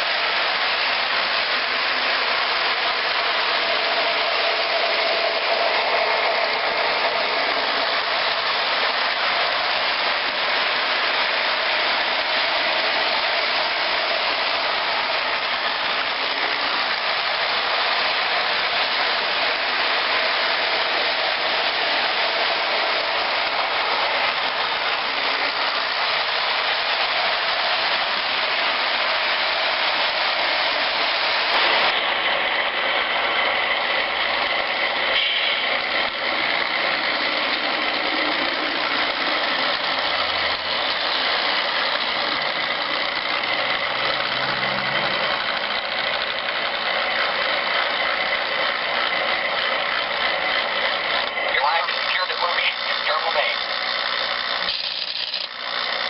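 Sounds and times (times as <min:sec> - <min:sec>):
train passing: 0:00.0 - 0:41.6.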